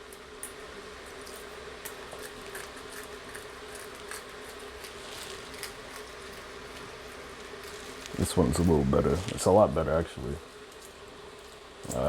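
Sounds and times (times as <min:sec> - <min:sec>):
faint steady hum: 0:00.0 - 0:12.0
water boiling: 0:00.0 - 0:12.0
eggshell crackling: 0:00.4 - 0:10.0.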